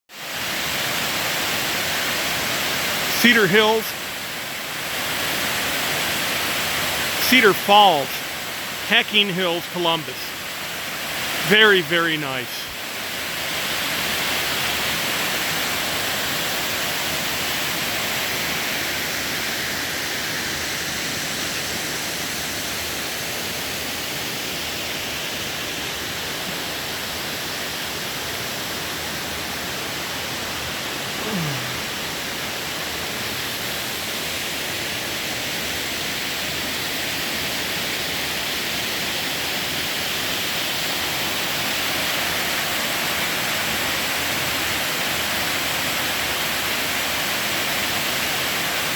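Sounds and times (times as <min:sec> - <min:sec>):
waterfall roaring: 0:00.3 - 0:48.9.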